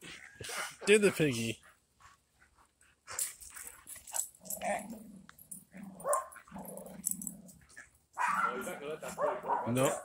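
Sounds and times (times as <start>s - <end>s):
dog growling: 4.4s - 7.8s.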